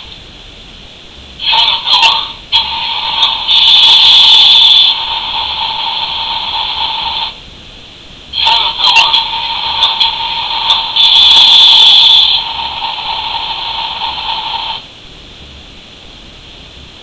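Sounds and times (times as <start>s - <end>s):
toy electronic sound effects: 1.5s - 5.0s, 8.4s - 12.5s.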